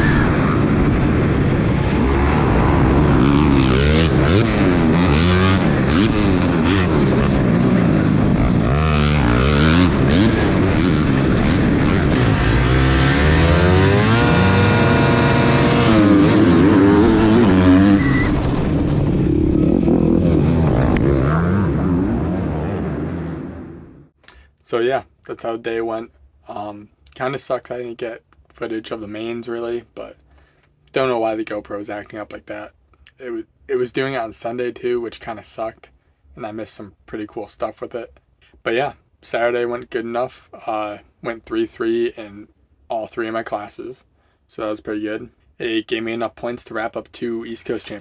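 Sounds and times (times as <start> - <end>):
dirt bike engines revving: 1.8 - 18.6, 19.6 - 23.6.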